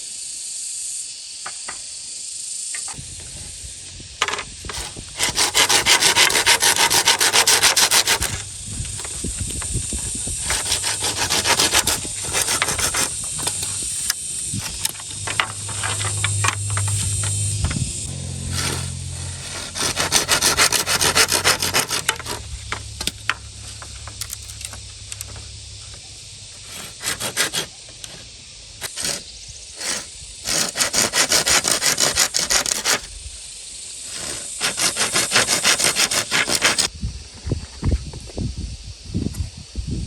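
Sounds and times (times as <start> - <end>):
hand saw cutting bamboo: 4.2 - 9.2, 10.3 - 17.5, 18.1 - 25.5, 26.6 - 28.2, 28.8 - 33.1, 34.0 - 36.9.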